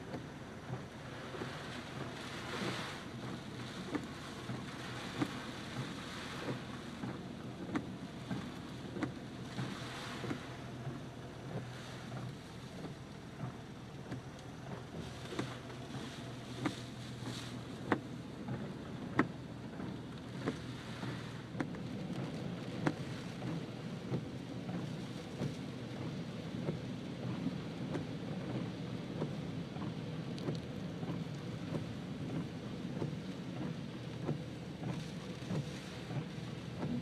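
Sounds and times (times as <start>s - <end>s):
car hum on wet road: 0.0s - 37.0s
heavy rain on car roof: 0.0s - 37.0s.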